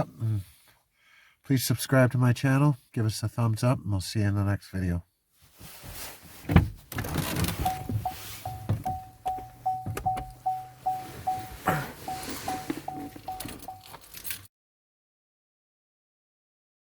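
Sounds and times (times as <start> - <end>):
rustling: 5.4 - 14.4
car warning chime beeping: 7.5 - 14.2.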